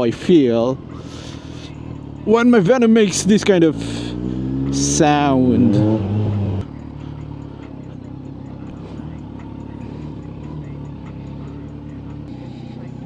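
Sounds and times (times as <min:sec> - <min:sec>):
motorcycle engine running at low revs: 0:00.3 - 0:13.0.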